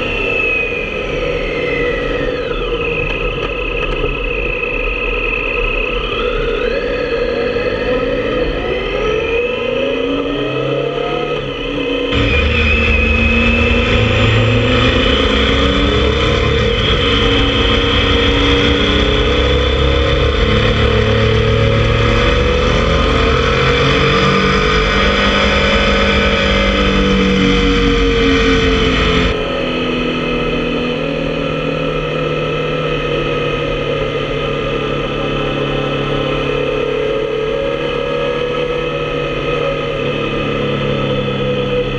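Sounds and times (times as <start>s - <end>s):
motorcycle engine running: 7.6s - 41.9s
wind rush: 12.1s - 29.4s.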